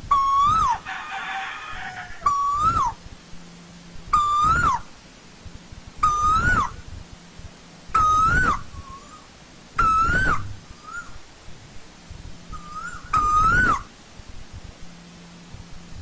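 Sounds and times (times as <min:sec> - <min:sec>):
koel whistled call: 0:00.1 - 0:00.8, 0:04.2 - 0:04.9, 0:06.0 - 0:06.8, 0:08.0 - 0:11.2, 0:12.6 - 0:13.9.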